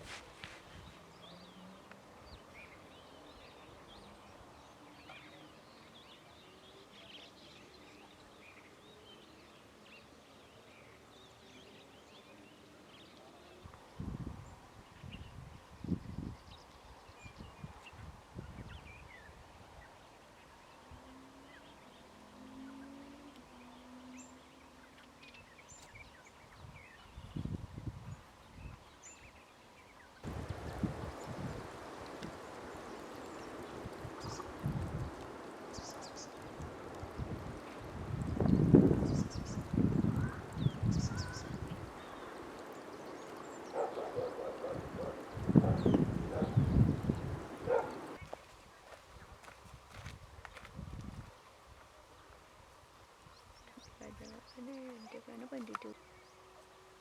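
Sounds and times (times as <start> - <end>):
small birds twittering: 22.7 - 49.4, 53.3 - 56.9.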